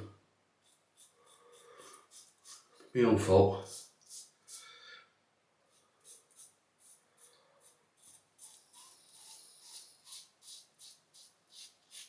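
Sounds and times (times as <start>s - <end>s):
razor scratching through beard: 0.6s - 2.8s, 3.6s - 4.6s, 5.7s - 12.0s.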